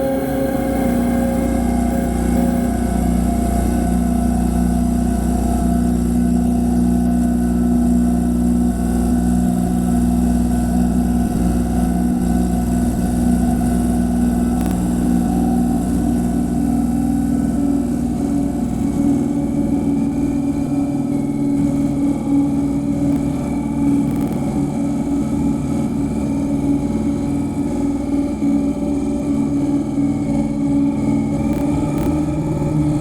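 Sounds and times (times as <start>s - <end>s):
harsh noise drone: 0.0s - 6.1s, 12.2s - 18.6s, 19.3s - 26.4s, 30.2s - 33.0s.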